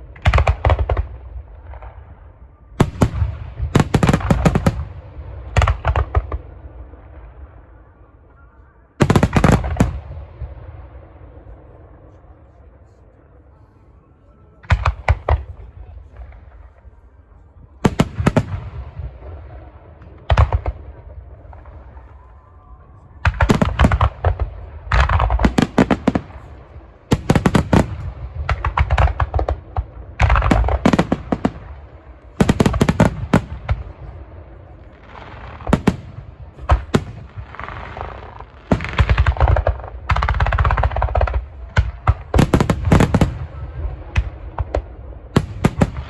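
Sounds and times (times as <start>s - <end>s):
fireworks bursting with sharp bangs: 0.0s - 7.7s, 9.0s - 11.5s, 14.6s - 17.1s, 17.7s - 46.0s.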